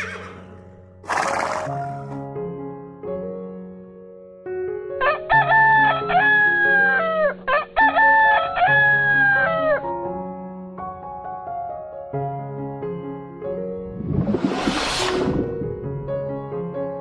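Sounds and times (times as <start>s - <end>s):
soft background music: 0.0s - 13.4s
rooster crowing: 5.3s - 9.7s.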